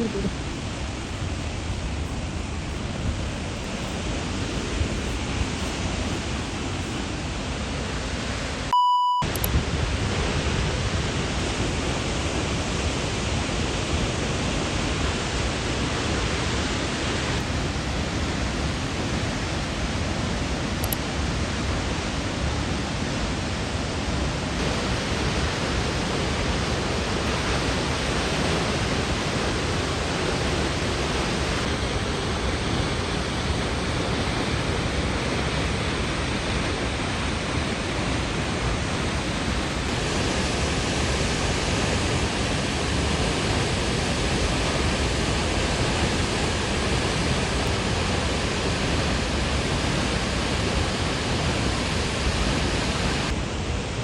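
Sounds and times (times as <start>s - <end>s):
waterfall rushing: 0.0s - 8.7s, 21.4s - 53.8s
short beep: 8.7s - 9.5s.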